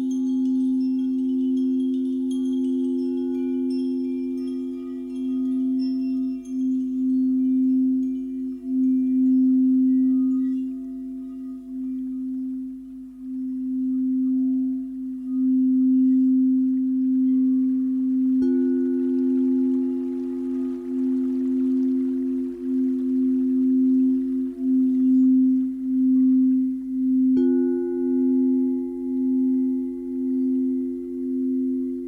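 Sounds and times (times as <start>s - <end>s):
high tinkling chimes: 0.0s - 32.0s
singing bowls ringing: 0.0s - 32.0s.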